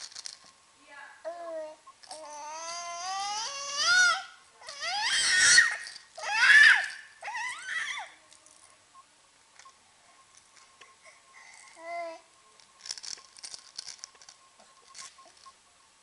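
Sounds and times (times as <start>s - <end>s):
young child squealing and shrieking: 2.6s - 8.1s.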